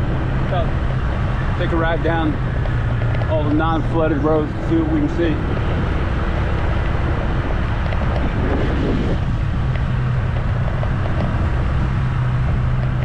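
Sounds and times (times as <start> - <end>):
vehicle engine running: 0.0 - 13.0
wind noise on microphone: 0.0 - 13.0.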